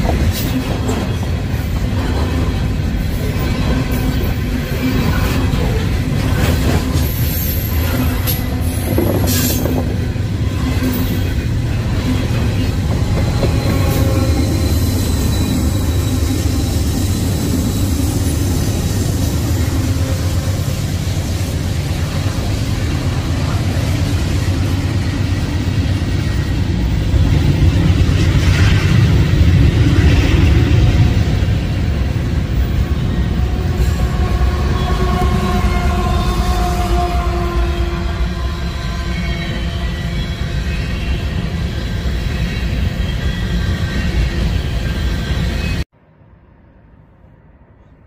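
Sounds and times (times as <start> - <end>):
train wheels rumbling on rail: 0.0 - 45.9
faint wheel squeal: 12.5 - 18.4.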